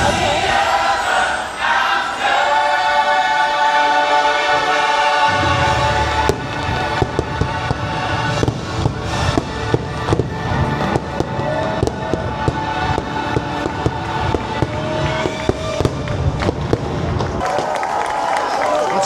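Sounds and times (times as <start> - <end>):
music soundtrack: 0.0 - 17.4
fireworks bursting: 5.2 - 17.8.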